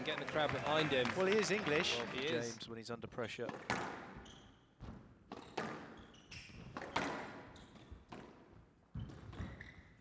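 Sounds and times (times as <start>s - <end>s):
shoes squeaking on court: 4.2s - 10.0s.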